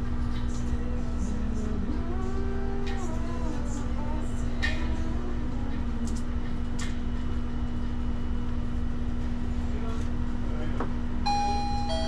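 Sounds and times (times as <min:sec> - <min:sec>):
machine rumble and hum: 0:00.0 - 0:12.0
chime-like electronic tone: 0:11.3 - 0:12.0.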